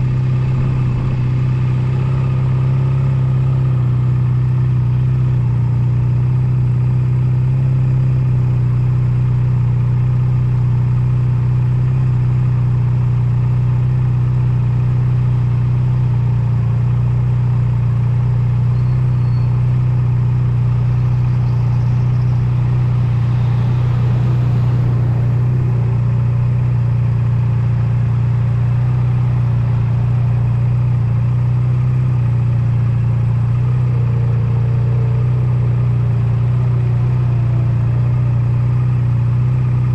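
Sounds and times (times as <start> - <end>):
wind and road noise: 0.0 - 8.9, 19.2 - 39.9
motorcycle engine running: 0.0 - 39.9.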